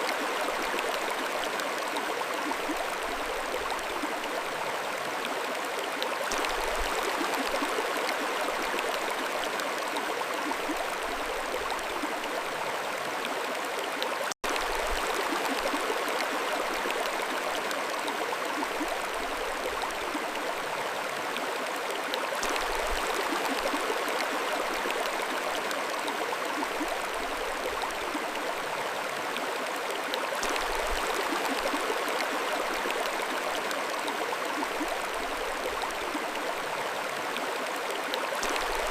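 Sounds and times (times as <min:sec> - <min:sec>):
mountain stream flowing: 0:00.0 - 0:38.9.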